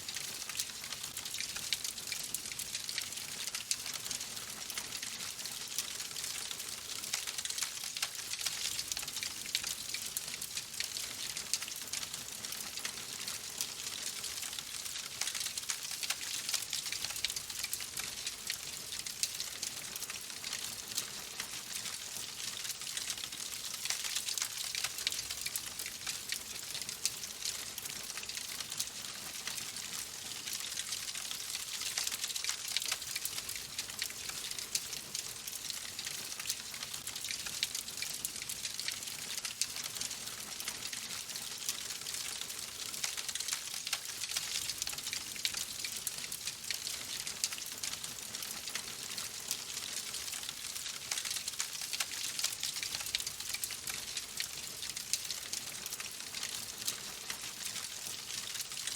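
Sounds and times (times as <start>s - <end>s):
fire crackling and popping: 30.7s - 46.1s.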